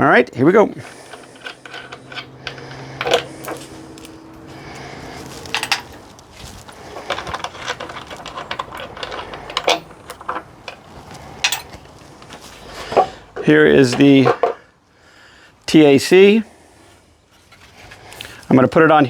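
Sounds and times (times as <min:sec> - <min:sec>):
metal parts clinking: 0:00.0 - 0:14.6
low steady hum: 0:00.0 - 0:15.6.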